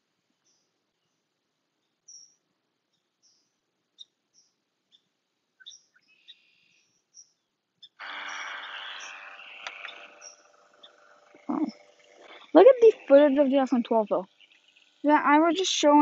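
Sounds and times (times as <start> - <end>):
small birds chirping: 0.0 - 16.0
loud humming noise: 8.0 - 16.0.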